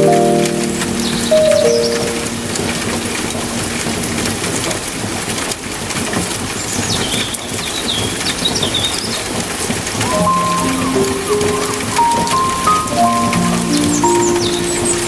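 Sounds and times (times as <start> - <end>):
held low musical note: 0.0 - 5.0
steady rain patter: 0.0 - 15.0.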